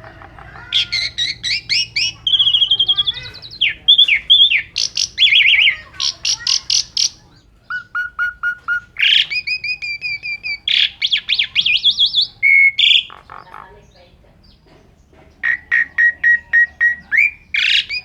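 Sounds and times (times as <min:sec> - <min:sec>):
starling singing varied song: 0:00.0 - 0:14.7, 0:15.3 - 0:18.0.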